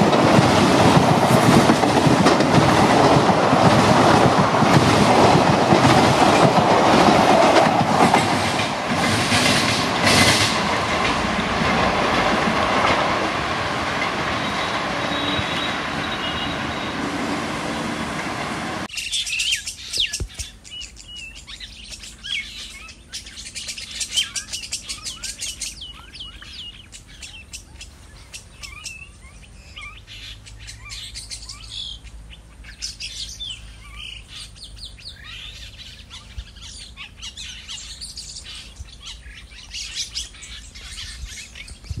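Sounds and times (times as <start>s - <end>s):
small birds chirping: 18.9s - 42.0s.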